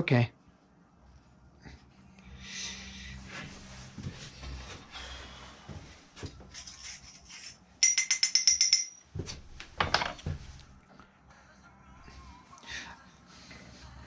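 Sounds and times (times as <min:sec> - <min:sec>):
rubbing and handling noise: 0:03.2 - 0:10.8
sharp ringing taps: 0:07.8 - 0:09.2.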